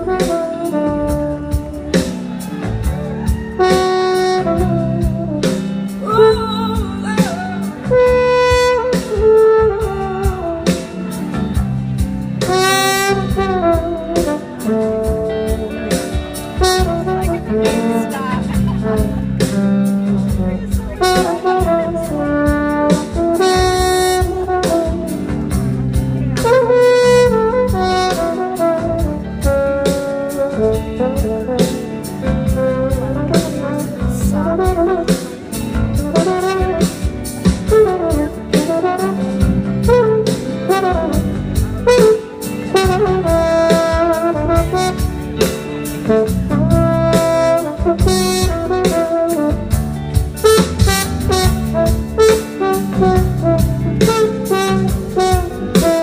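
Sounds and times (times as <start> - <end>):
bass: 0.0 - 56.0
horns playing melody: 0.0 - 56.0
drum beat: 15.6 - 19.6, 46.0 - 56.0.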